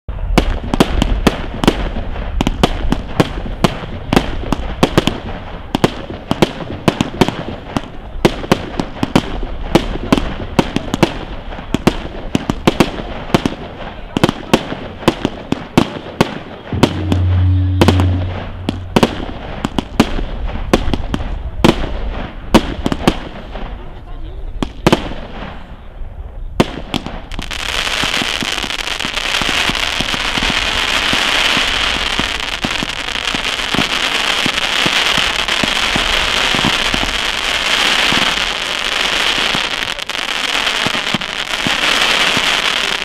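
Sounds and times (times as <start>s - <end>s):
fireworks bangs: 0.1s - 25.7s, 26.5s - 43.0s
low hum: 16.7s - 19.6s.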